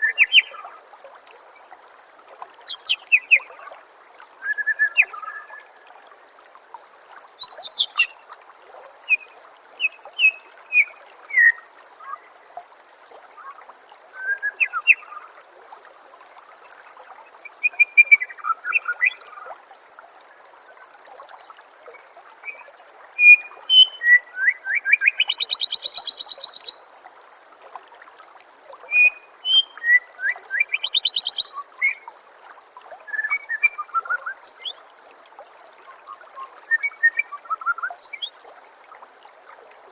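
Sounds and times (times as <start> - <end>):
flowing water trickling: 0.0 - 39.9
bird singing whistled notes: 4.4 - 5.6, 9.8 - 12.2, 14.2 - 15.2, 22.5 - 26.8, 28.9 - 32.0, 33.1 - 34.8, 36.4 - 38.3.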